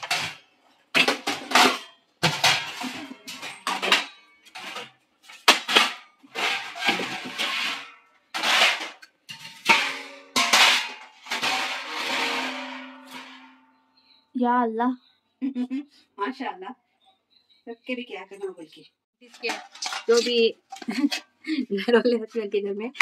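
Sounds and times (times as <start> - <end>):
metal dishes clattering: 0.0 - 13.9, 19.2 - 21.6.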